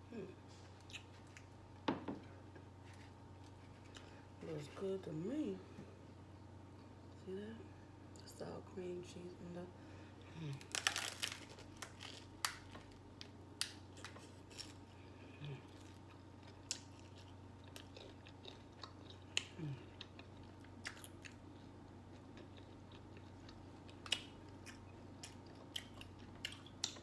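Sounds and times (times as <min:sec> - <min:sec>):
person chewing taco: 0:00.5 - 0:01.8, 0:02.4 - 0:04.4, 0:10.6 - 0:27.0
crunchy taco shell crunches: 0:10.5 - 0:27.0.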